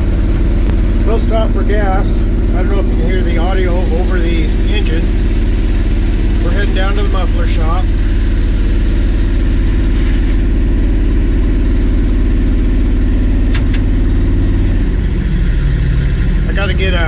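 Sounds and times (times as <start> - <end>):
loud truck engine running: 0.0 - 17.0
brief clicks: 13.5 - 13.9.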